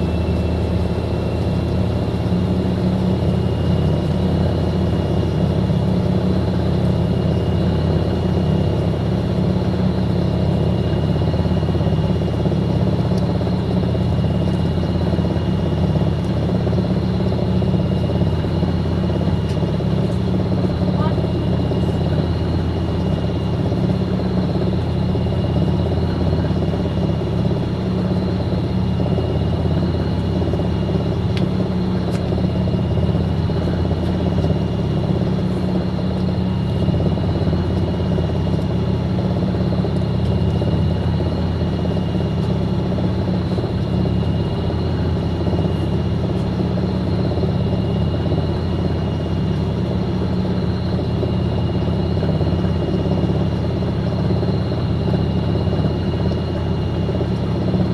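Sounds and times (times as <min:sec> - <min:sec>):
high-pitched motor whine: 0:00.0 - 0:57.9
washing machine spinning: 0:00.0 - 0:57.9.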